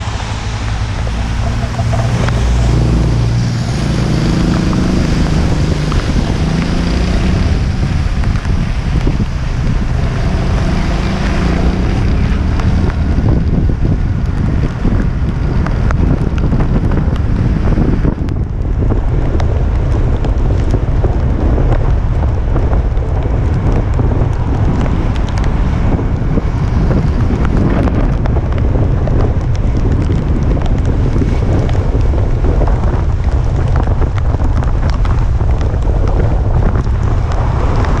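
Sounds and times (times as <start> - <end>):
strong wind buffeting microphone: 0.0 - 38.0.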